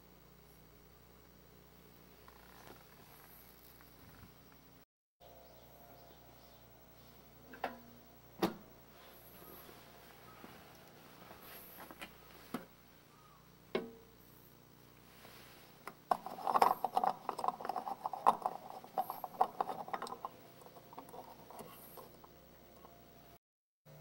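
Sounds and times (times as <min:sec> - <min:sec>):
small hard objects clinking: 0:16.1 - 0:22.2.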